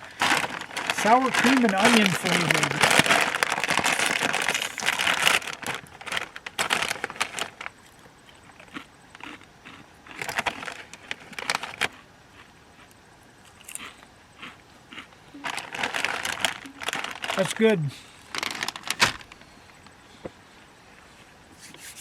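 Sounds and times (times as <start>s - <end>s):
foil chip bag crinkling: 0.0s - 12.0s, 15.0s - 19.6s.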